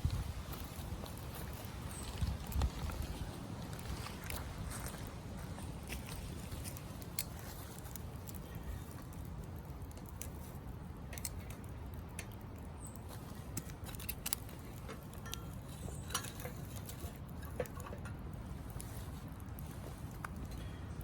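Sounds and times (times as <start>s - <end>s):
low steady rumble: 0.0s - 7.2s
wood crackling and popping in stove: 0.0s - 21.0s.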